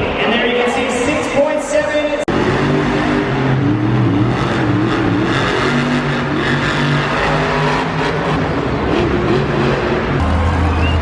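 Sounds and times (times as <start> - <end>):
loud steady din: 2.3 - 11.0
truck engine revving: 2.3 - 11.0.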